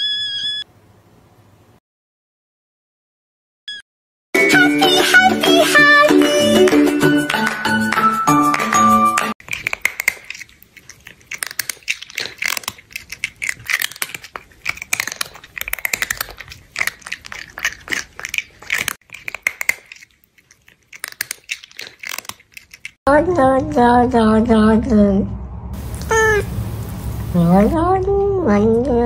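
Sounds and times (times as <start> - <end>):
crunchy chewing: 9.4 - 23.0
cat meowing: 26.0 - 26.5.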